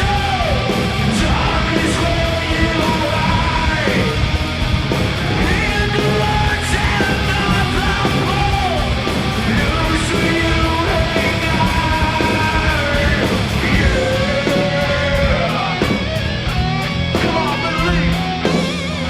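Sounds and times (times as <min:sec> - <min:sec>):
distorted electric guitar: 0:00.0 - 0:19.0.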